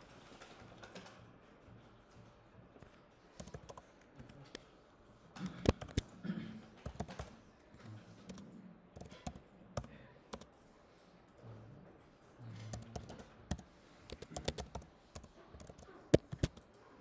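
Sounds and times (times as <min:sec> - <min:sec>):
typing on a computer keyboard: 0:00.0 - 0:01.3, 0:02.8 - 0:04.6, 0:05.4 - 0:06.2, 0:06.8 - 0:10.6, 0:12.6 - 0:16.9.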